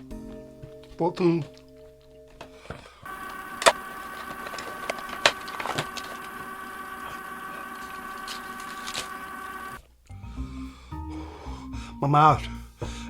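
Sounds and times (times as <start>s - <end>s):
machine-like hum: 3.1s - 9.8s
sharp clicks: 3.1s - 9.8s.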